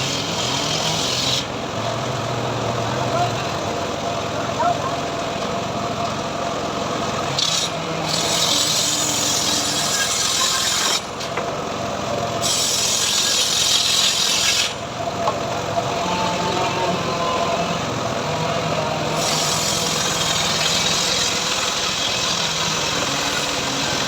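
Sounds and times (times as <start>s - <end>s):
saw blade rasping through wood: 0.0s - 1.5s, 7.4s - 11.4s, 12.4s - 14.9s, 18.8s - 24.0s
sawmill engine running: 0.0s - 24.0s.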